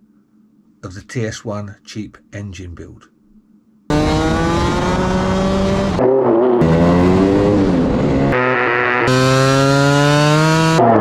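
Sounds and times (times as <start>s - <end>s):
scooter engine revving: 3.9s - 11.0s.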